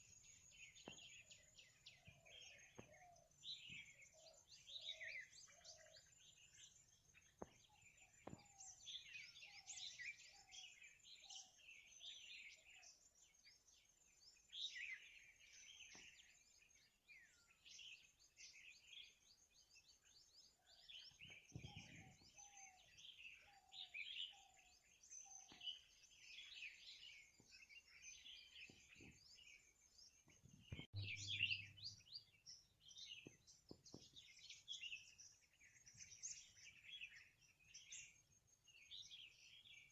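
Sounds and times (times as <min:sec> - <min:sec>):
birds chirping and trilling: 0:00.0 - 0:39.9
bird repeating low note: 0:30.7 - 0:32.2.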